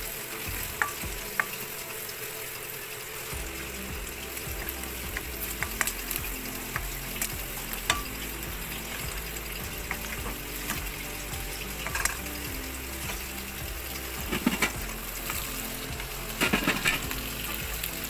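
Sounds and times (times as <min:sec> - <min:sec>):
food sizzling in hot oil: 0:00.0 - 0:18.0
spatula scraping and tapping pan: 0:11.8 - 0:12.4.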